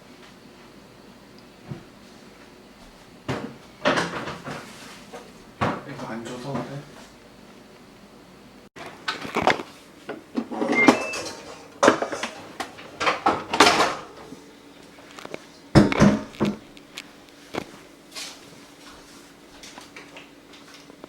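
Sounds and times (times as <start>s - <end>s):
dishes and utensils clattering: 10.4s - 14.4s.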